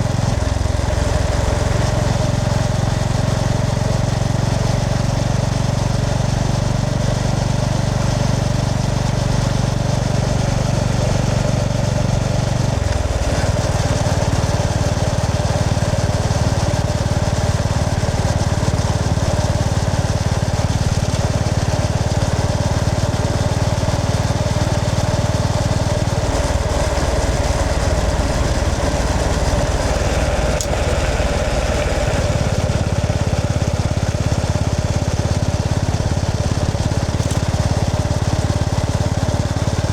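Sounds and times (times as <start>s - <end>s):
motorcycle engine running: 0.0s - 39.9s
wind and road noise: 8.3s - 39.6s.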